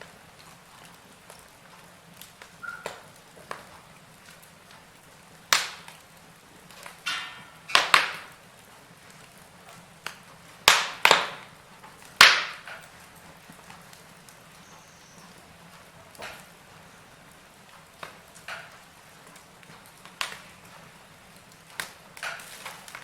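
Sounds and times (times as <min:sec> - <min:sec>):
burning logs popping: 0:00.0 - 0:23.0
low steady hiss: 0:00.0 - 0:23.0
wood fire crackling: 0:00.0 - 0:23.0.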